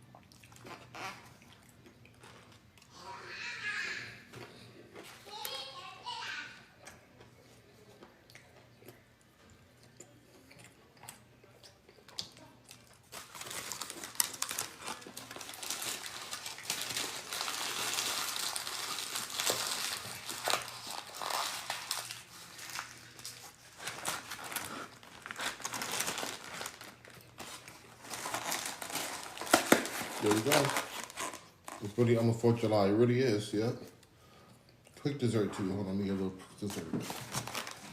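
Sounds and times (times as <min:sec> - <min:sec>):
food packaging crumpling: 0:12.7 - 0:32.2, 0:36.6 - 0:37.9.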